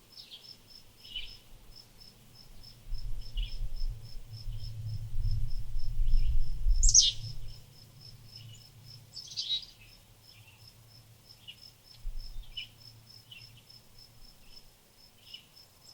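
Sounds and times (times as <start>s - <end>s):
small birds chirping: 0.1s - 1.5s, 2.6s - 3.9s, 6.0s - 7.6s, 8.3s - 13.8s, 15.2s - 15.6s
insect chirping: 0.1s - 15.9s
low rumble: 2.9s - 7.6s.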